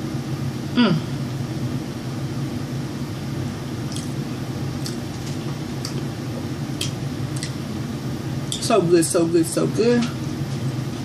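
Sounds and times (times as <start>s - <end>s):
steady low hum: 0.0s - 11.0s
chewing and mouth sounds: 3.9s - 4.2s, 4.8s - 7.6s.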